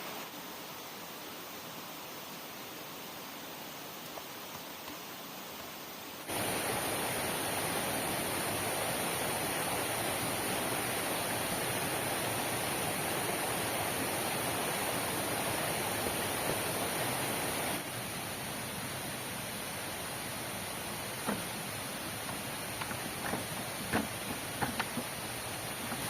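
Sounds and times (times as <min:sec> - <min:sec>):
heavy rain hissing: 0:00.0 - 0:26.0.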